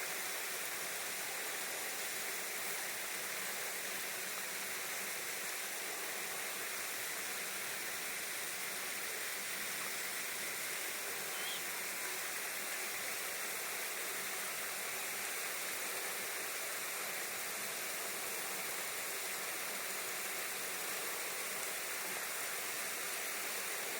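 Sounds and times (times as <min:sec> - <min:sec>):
steady rushing hiss: 0:00.0 - 0:23.9
faint high chirp: 0:11.2 - 0:11.8.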